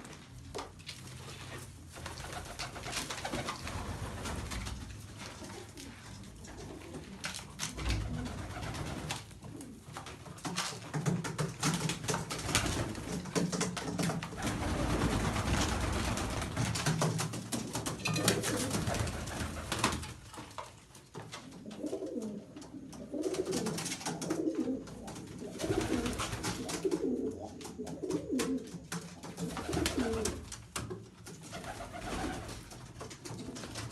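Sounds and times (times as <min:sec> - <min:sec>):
pigeons cooing: 0:21.6 - 0:28.7, 0:29.4 - 0:30.4.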